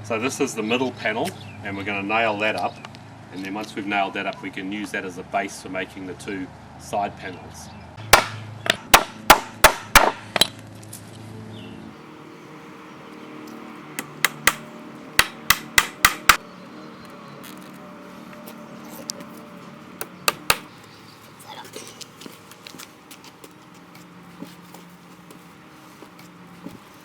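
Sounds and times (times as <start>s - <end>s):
hammer nailing wooden boards: 8.1s - 10.2s, 14.0s - 16.4s, 20.2s - 20.7s.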